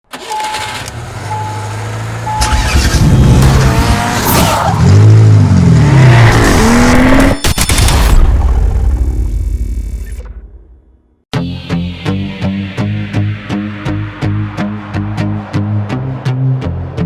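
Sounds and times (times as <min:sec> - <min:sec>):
car engine revving: 0:00.1 - 0:07.4.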